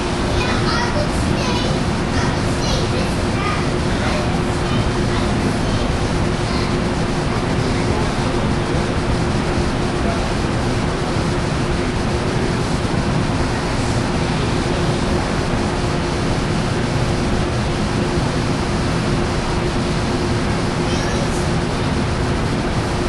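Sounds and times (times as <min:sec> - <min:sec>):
diesel locomotive idling: 0:00.0 - 0:23.0.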